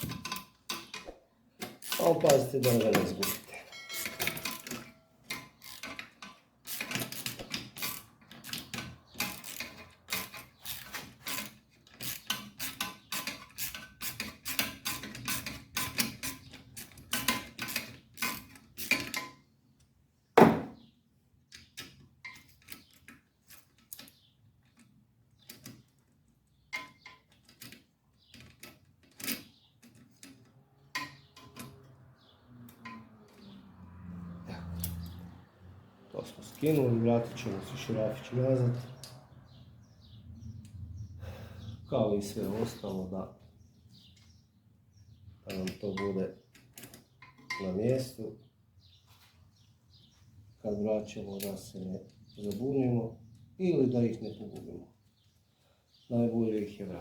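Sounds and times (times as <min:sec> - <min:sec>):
wrench clicking on metal parts: 0:00.0 - 0:19.4
sharp metallic knock: 0:20.4 - 0:20.8.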